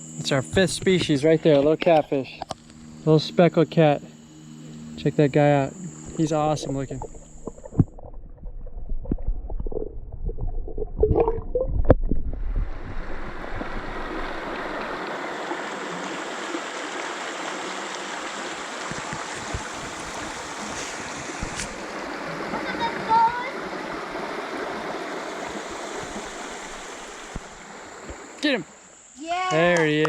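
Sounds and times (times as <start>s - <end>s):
creek water flowing: 4.7s - 11.4s, 12.0s - 29.1s
low rumble: 6.6s - 14.9s.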